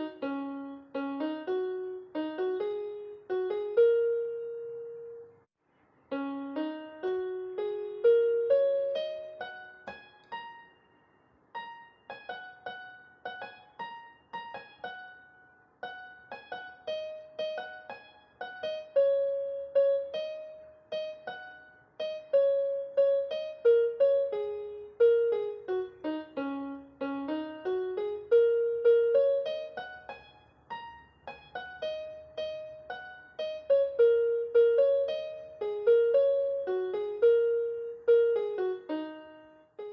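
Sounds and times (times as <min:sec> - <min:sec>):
gentle piano melody: 0:00.0 - 0:05.5, 0:06.1 - 0:39.9.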